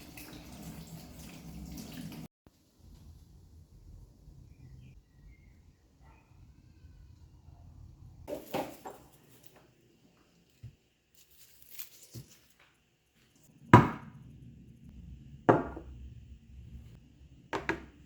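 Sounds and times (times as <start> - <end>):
knife chopping on cutting board: 13.8 - 14.1.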